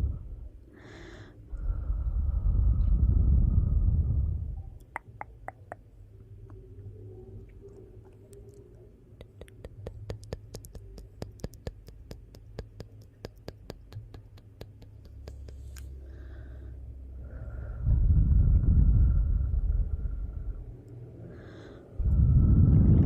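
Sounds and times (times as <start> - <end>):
low rumble: 1.4 - 4.8, 16.0 - 23.0
sharp pops and snaps: 4.8 - 5.8, 8.1 - 15.9.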